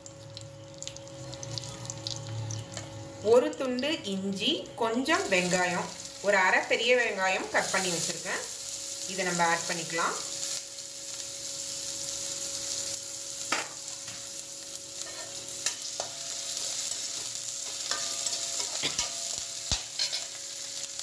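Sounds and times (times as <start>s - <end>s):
food sizzling in hot oil: 0.0s - 21.0s
metal spatula scraping a pan: 15.0s - 20.4s.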